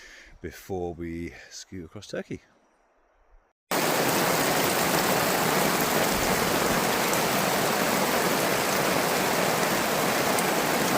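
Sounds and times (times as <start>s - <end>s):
water rushing: 3.7s - 10.9s.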